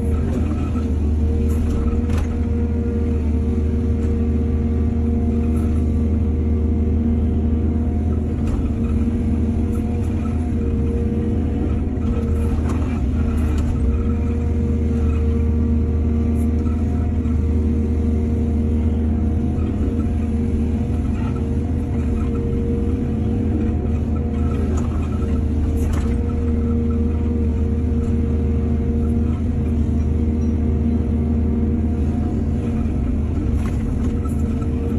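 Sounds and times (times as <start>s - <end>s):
excavator diesel engine droning: 0.0s - 34.9s.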